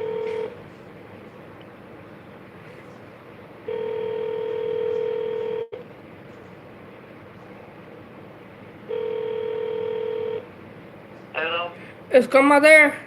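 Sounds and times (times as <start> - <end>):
telephone ringback tone: 0.0 - 0.6, 3.7 - 5.8, 8.9 - 10.5.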